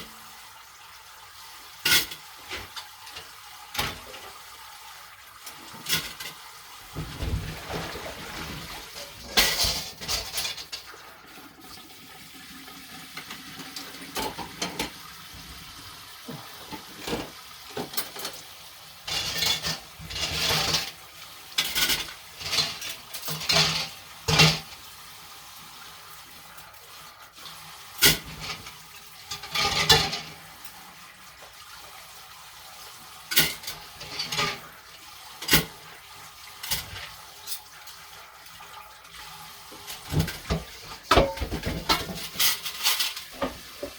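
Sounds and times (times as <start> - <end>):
tap water running: 0.0 - 43.9
dishes and cutlery clinking: 9.0 - 10.9, 21.6 - 24.7, 29.3 - 30.4, 40.1 - 43.9.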